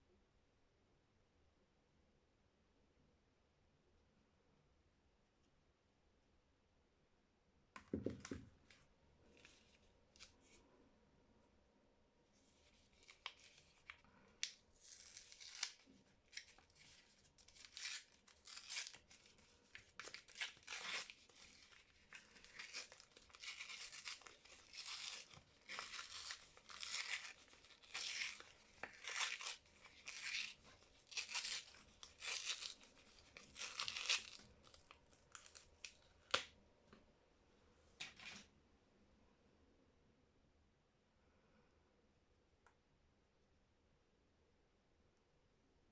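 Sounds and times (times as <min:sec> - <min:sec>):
wrapper tearing and crinkling: 0:12.8 - 0:36.5.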